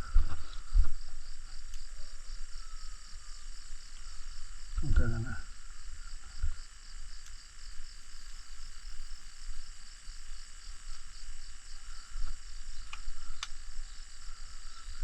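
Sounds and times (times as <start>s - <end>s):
insects chirring: 0.0s - 15.0s
sharp clicks: 12.8s - 13.6s.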